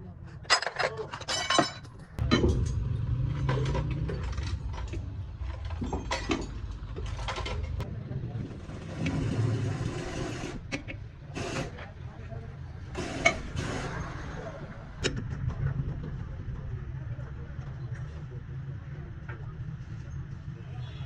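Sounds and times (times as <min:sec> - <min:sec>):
metal clinks and knocks: 0:00.4 - 0:07.8
vehicle engine rumble: 0:01.1 - 0:21.0.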